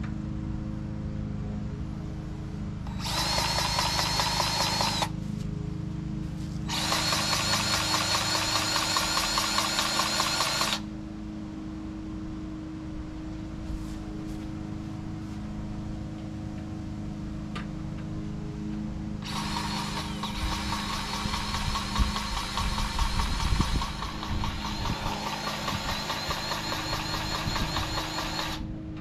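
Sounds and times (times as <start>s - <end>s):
steady low hum: 0.0s - 29.0s
cordless grease gun running: 2.8s - 5.2s, 6.6s - 10.9s, 19.2s - 28.7s.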